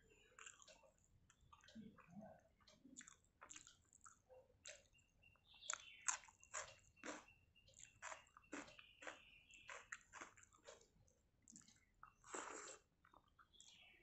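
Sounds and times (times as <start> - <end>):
wet chewing: 0.0 - 13.8.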